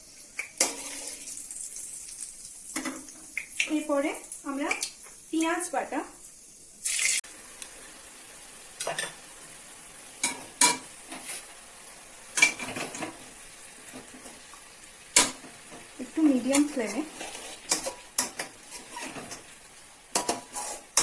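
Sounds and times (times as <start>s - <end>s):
onion paste sizzling in oil: 0.0s - 21.0s
spatula scraping a pan: 10.2s - 11.5s, 15.2s - 21.0s.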